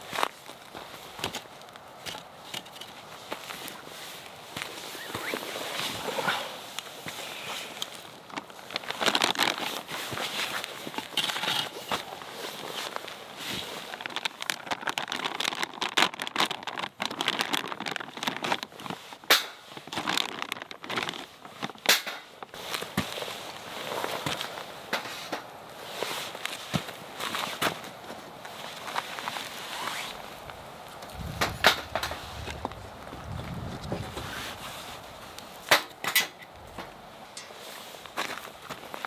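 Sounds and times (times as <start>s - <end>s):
campfire crackling: 27.9s - 39.0s.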